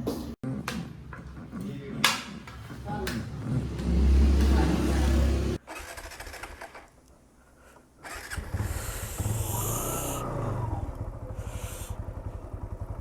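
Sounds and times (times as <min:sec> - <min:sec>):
motorcycle engine rumbling: 0:08.1 - 0:13.0.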